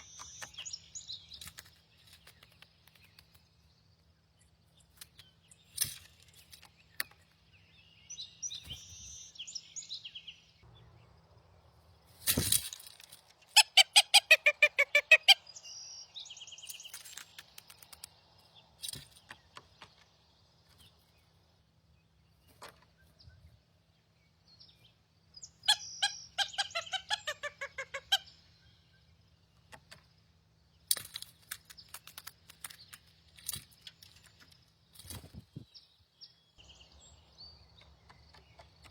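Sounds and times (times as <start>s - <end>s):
scattered clicks: 16.7s - 18.2s.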